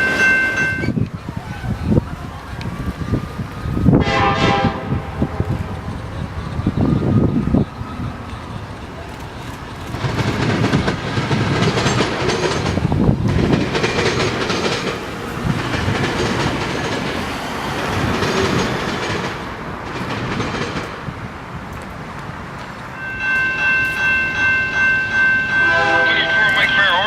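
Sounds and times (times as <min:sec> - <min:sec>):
train wheels rumbling on rails: 0:00.0 - 0:27.0
train air horn: 0:04.0 - 0:05.7, 0:25.6 - 0:26.7.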